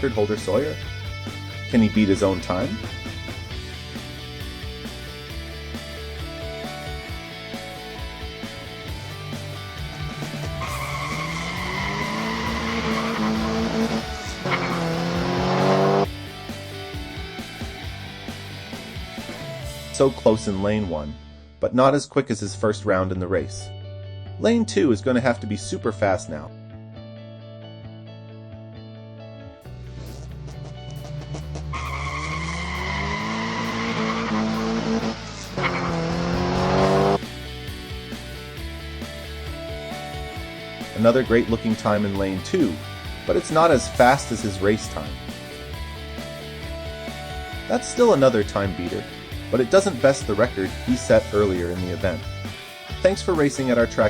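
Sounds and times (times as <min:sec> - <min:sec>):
background music: 0:00.0 - 0:54.0
race car engine revving: 0:09.8 - 0:16.1, 0:30.9 - 0:37.2.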